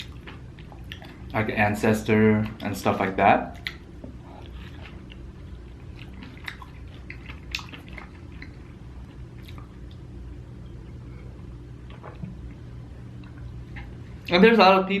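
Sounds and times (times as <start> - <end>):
chewing food: 0.0 - 1.5, 3.5 - 10.1, 11.8 - 13.9
steady low hum: 0.0 - 15.0.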